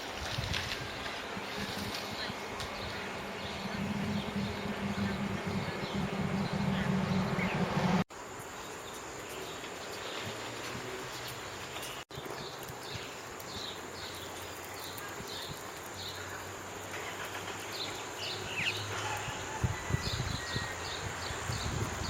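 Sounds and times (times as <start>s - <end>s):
birds chirping: 1.3s - 8.0s
faint low hum: 1.4s - 8.0s
low thumps: 1.4s - 8.0s.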